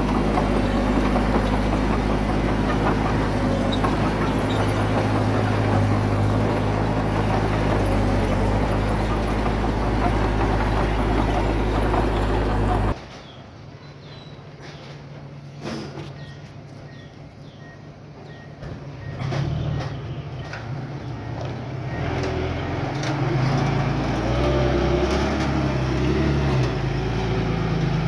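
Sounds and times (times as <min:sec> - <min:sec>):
heavy diesel engine running: 0:00.0 - 0:13.0, 0:20.8 - 0:28.0.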